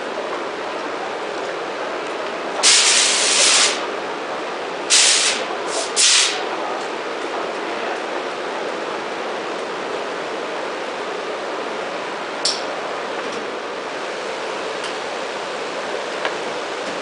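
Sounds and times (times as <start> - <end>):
production line machinery running: 0.0 - 17.0
compressed air hissing: 2.6 - 3.8, 4.9 - 6.4.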